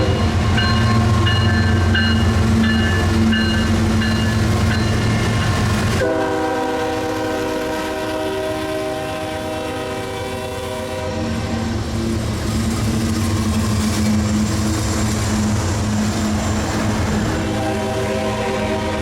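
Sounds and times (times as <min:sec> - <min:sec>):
long train horn: 0:00.0 - 0:01.3, 0:05.8 - 0:11.8, 0:17.1 - 0:19.0
diesel locomotive engines rumbling: 0:00.0 - 0:19.0
short train horn blasts: 0:06.0 - 0:11.7, 0:17.4 - 0:19.0.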